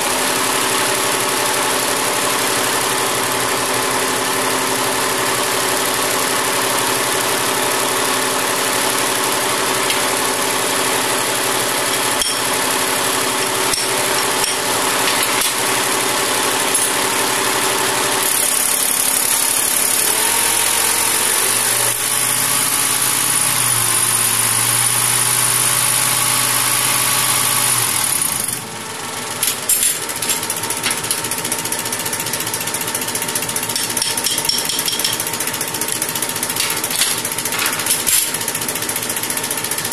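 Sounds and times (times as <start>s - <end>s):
machinery clattering: 29.4s - 31.7s, 33.1s - 39.1s.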